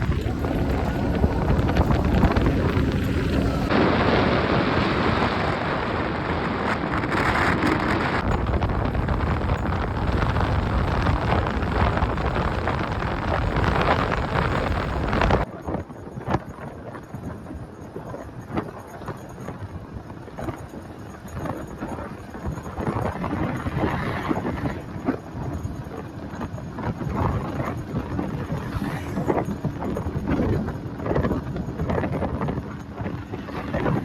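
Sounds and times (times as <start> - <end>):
vehicle rumble on road: 0.0 - 15.5
wind buffeting microphone: 0.0 - 34.0.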